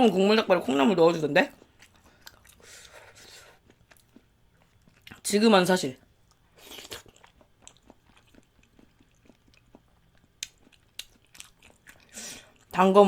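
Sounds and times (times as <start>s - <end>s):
person chewing food: 1.5s - 5.3s, 6.1s - 12.8s.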